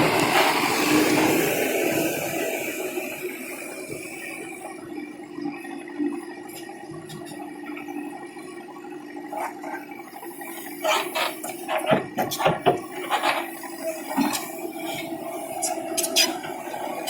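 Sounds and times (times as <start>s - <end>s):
tractor diesel engine running: 0.0s - 5.4s, 9.2s - 17.0s.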